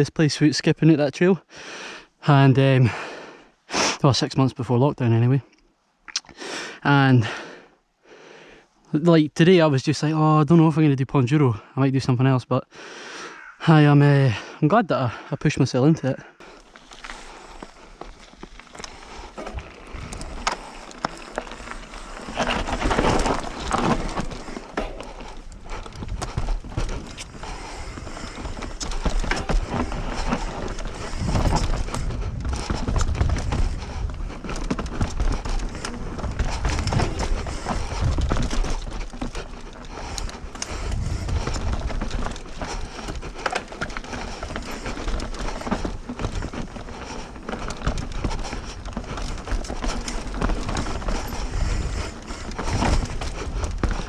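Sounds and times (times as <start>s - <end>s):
bike tyres rolling on dirt: 16.0s - 54.0s
bike rattling clicks: 16.5s - 54.0s.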